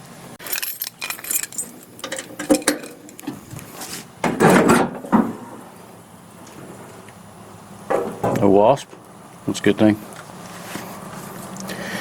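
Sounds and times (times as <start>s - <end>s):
handling knocks and rattles: 0.4s - 5.6s.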